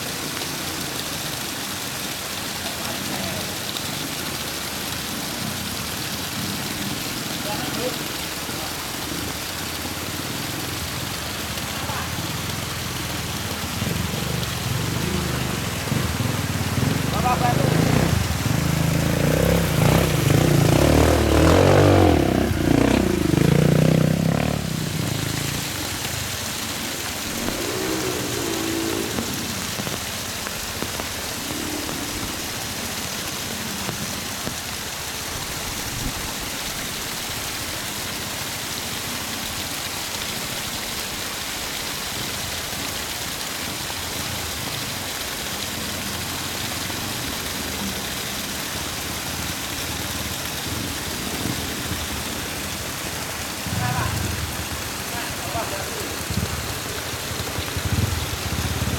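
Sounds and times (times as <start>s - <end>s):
heavy rain: 0.0s - 58.9s
vehicle engine running: 9.0s - 30.9s, 53.3s - 58.9s.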